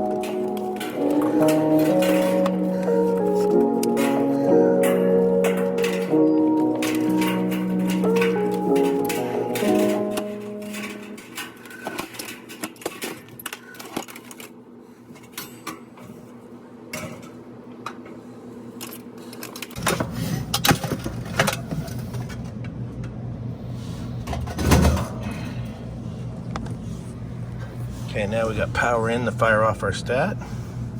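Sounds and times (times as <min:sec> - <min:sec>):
tools clicking and knocking: 0:00.0 - 0:14.6
low machine hum: 0:00.0 - 0:30.9.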